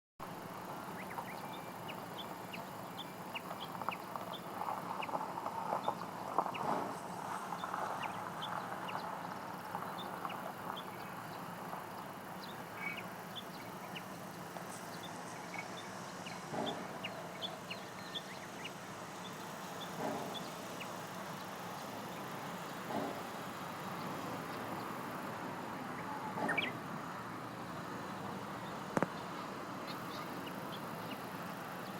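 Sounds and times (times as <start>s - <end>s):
small birds chirping: 0.4s - 31.9s
louder lower bird calls: 12.4s - 27.2s
bird calling sharp notes: 25.9s - 26.8s.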